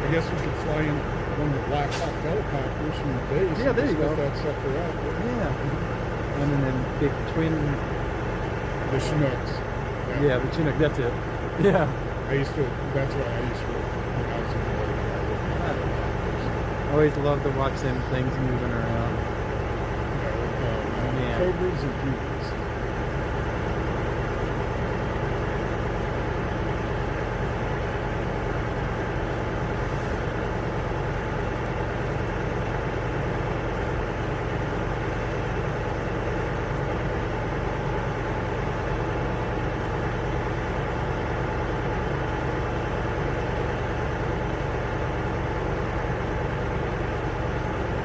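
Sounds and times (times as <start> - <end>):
vehicle engine idling: 0.0 - 48.0.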